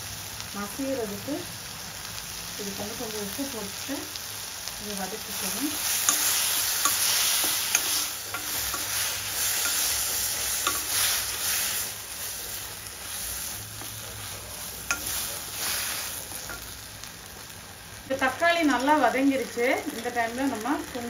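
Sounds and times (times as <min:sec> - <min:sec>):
food sizzling in oil: 0:00.0 - 0:21.0
wooden spatula scraping pan: 0:05.9 - 0:16.8.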